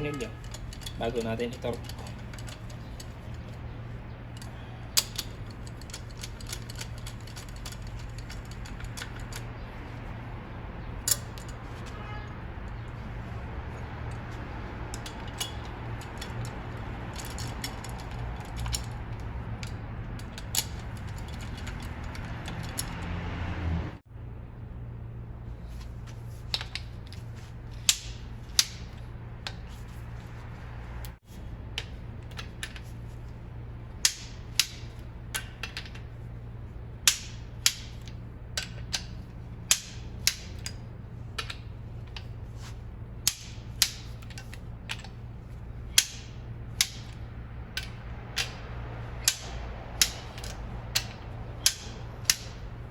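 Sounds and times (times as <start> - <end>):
metallic clicks of hand tools: 0.0 - 9.7, 11.0 - 12.0, 14.1 - 23.2, 26.4 - 30.0, 31.0 - 33.1, 34.0 - 36.2, 37.0 - 52.9
steady low hum: 24.0 - 52.9.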